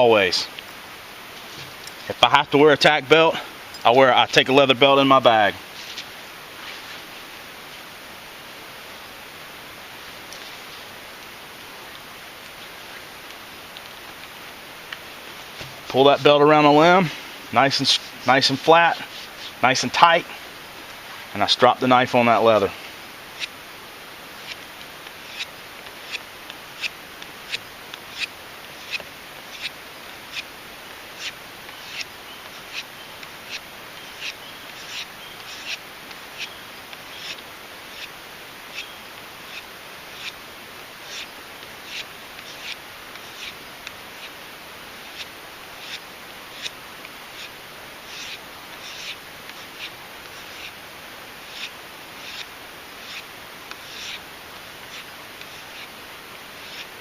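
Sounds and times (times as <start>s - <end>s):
knife stropped on leather belt: 5.7s - 7.1s, 17.9s - 19.6s, 33.5s - 35.8s, 41.0s - 43.6s, 45.1s - 46.8s, 47.4s - 50.8s, 51.4s - 54.2s, 54.9s - 55.9s, 56.6s - 56.9s.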